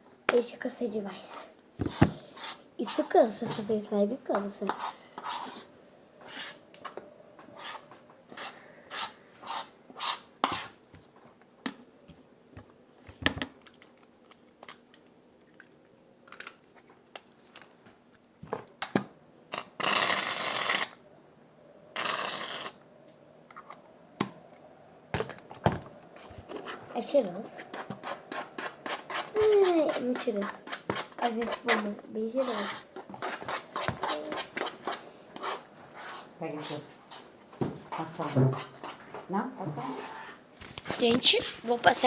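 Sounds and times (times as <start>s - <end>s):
slime stirred in a bowl: 4.4s - 6.6s, 26.2s - 37.2s.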